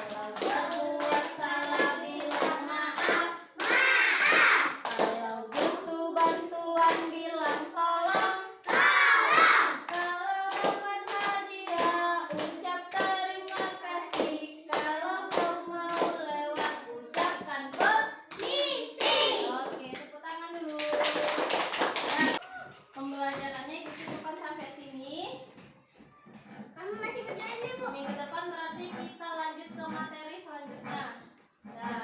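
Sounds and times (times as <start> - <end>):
steady hand claps: 0.0 - 20.0, 20.6 - 22.4
voices singing children's song: 0.0 - 21.2.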